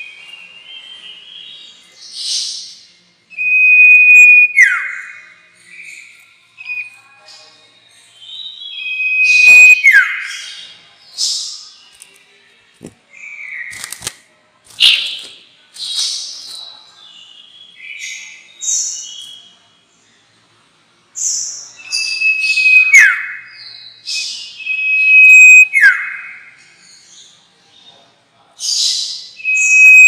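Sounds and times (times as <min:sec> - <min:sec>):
songbird chirping and whistling: 0:00.0 - 0:11.8, 0:14.8 - 0:19.5, 0:21.2 - 0:26.6, 0:28.7 - 0:30.0.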